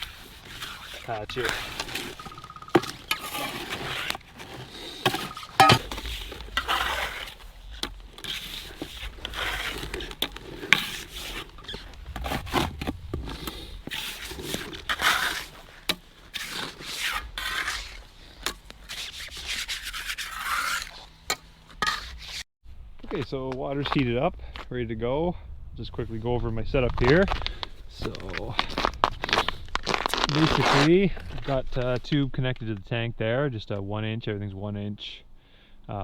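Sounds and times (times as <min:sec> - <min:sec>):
trowel scraping ice: 0:00.0 - 0:22.4, 0:29.2 - 0:30.9.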